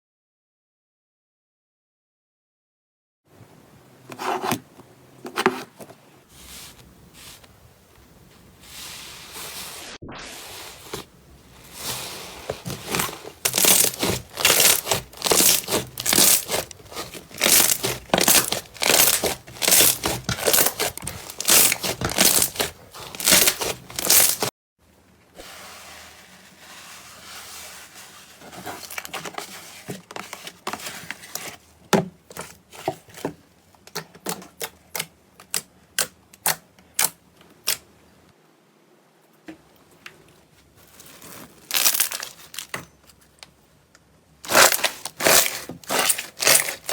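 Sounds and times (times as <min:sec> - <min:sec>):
slime crackling and popping: 0:12.8 - 0:24.5.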